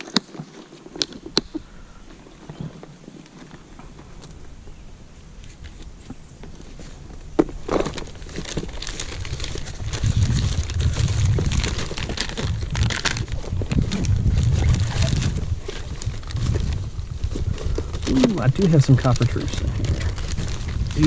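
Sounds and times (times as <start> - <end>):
rustling and crinkling of gear: 0.0 - 21.0
wind rumble on microphone: 1.2 - 21.0.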